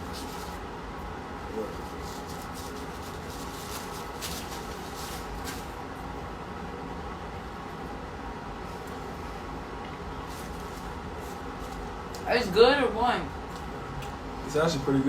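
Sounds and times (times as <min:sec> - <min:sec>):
restaurant dining room hum: 0:00.0 - 0:15.0.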